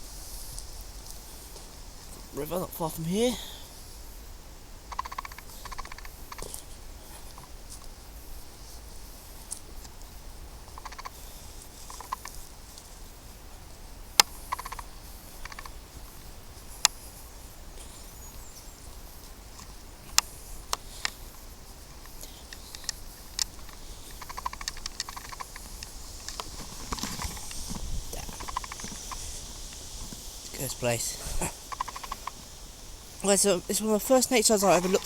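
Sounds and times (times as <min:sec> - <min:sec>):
twigs snapping: 0:22.0 - 0:30.3.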